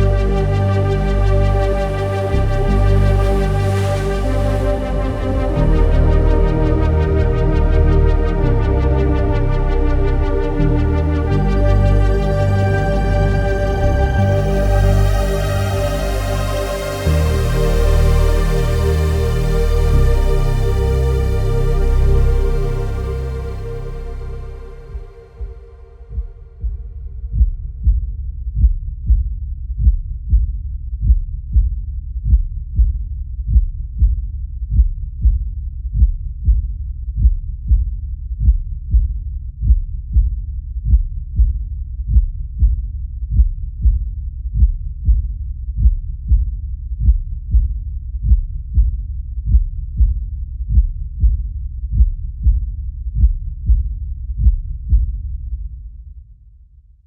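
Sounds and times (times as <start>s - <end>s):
low rumble: 0.0s - 34.1s
muffled heartbeat thumping: 24.6s - 55.9s.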